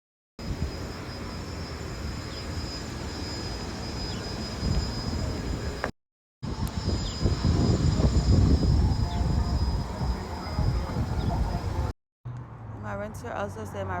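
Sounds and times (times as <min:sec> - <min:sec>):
car wash rushing roar: 0:00.4 - 0:05.9
faint high whine: 0:00.4 - 0:11.9.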